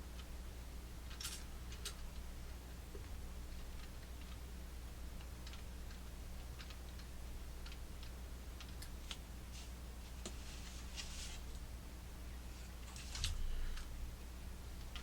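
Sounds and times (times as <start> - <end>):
steady low hum: 0.0 - 15.0
plastic clock parts clicking: 5.2 - 9.2.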